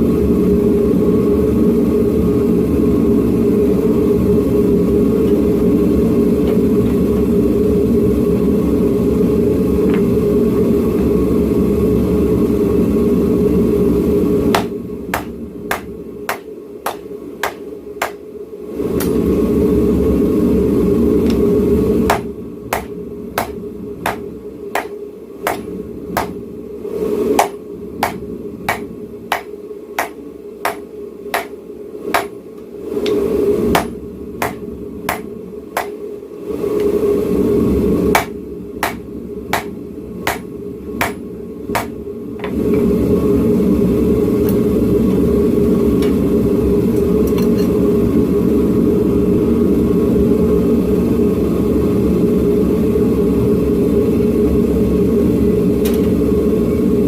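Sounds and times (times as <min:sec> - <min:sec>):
forge roaring: 0:00.0 - 0:57.0
hammer striking steel on anvil: 0:14.6 - 0:18.2, 0:22.1 - 0:24.2, 0:24.8 - 0:26.4, 0:27.4 - 0:31.6, 0:32.2 - 0:32.4, 0:33.8 - 0:36.0, 0:38.2 - 0:39.0, 0:39.6 - 0:41.2.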